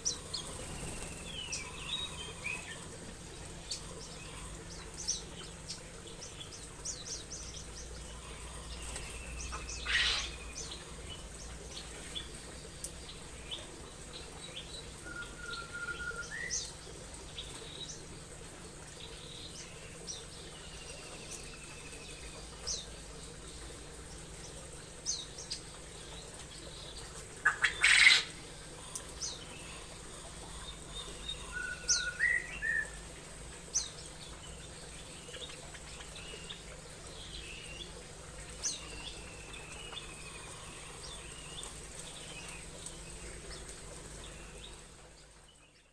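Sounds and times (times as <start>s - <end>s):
small birds chirping: 0.0s - 45.9s
bird warbling call: 8.2s - 10.8s, 27.4s - 28.4s, 30.6s - 33.0s.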